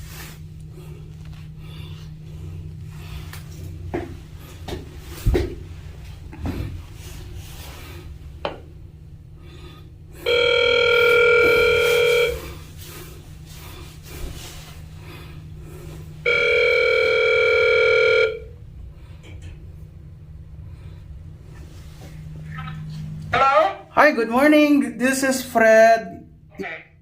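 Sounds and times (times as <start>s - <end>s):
telephone ringback tone: 10.2s - 12.6s, 16.2s - 18.5s.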